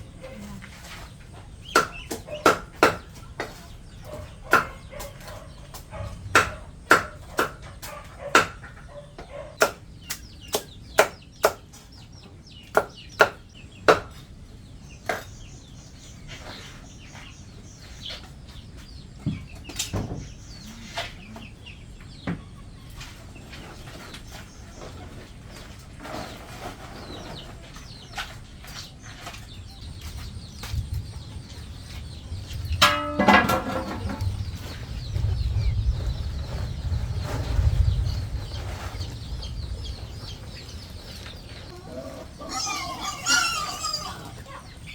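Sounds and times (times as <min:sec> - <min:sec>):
sharp chopping strikes: 0:01.7 - 0:03.1, 0:06.4 - 0:07.6, 0:09.6 - 0:11.6.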